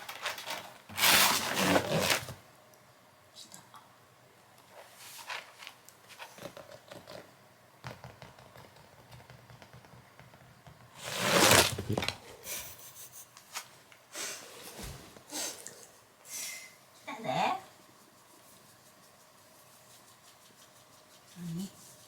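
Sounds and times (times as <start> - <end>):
rustling: 11.0 - 12.3.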